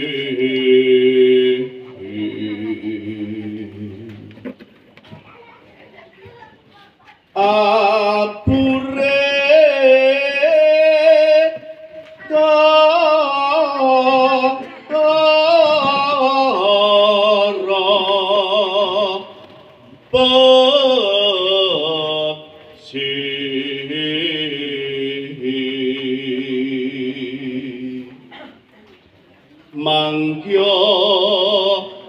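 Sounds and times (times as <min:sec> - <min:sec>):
person singing solo: 0:07.4 - 0:18.4.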